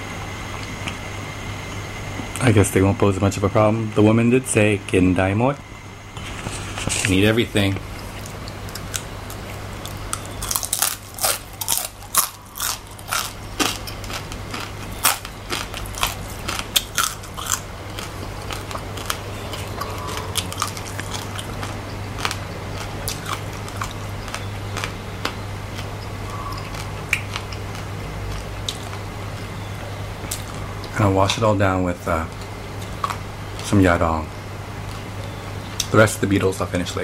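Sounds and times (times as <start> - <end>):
low hum: 0.0 - 36.9
crunchy chewing: 6.2 - 31.5, 32.3 - 33.8.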